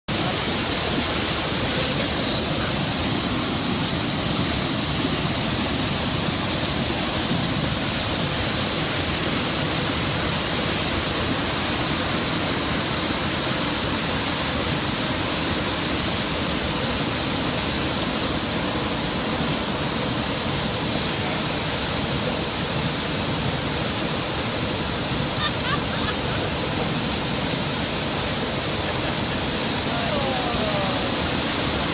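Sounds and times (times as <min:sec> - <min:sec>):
waterfall rushing: 0:00.1 - 0:31.9.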